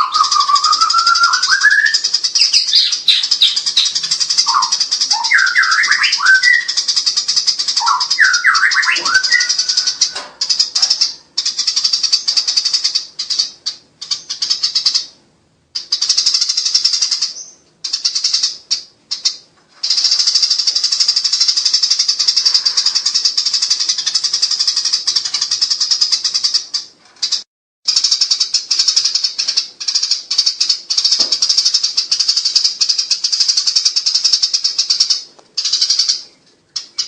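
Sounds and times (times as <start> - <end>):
sparrows rattling chatter: 0.0 - 37.0.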